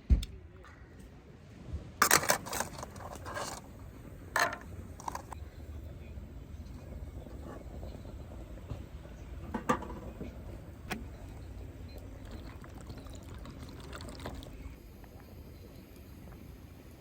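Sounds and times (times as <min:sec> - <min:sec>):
liquid pouring: 0:12.0 - 0:15.8.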